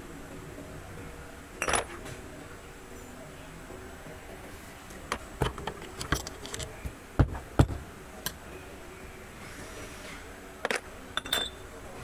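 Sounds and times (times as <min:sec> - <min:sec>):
hard objects clicking and knocking: 0:05.1 - 0:08.4.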